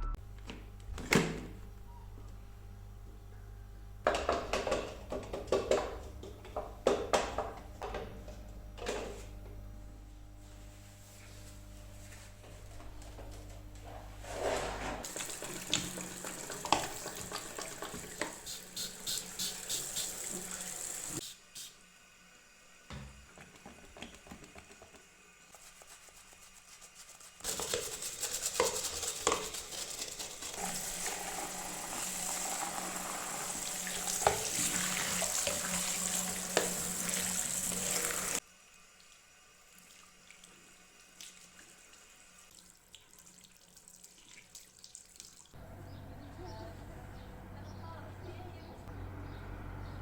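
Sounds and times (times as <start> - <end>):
water running from sink tap: 15.0 - 21.7, 27.5 - 38.4.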